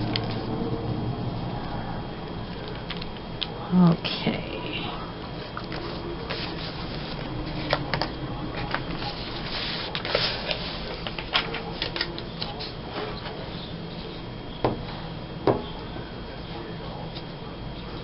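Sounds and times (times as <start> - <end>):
paper rustling: 5.4 - 13.5.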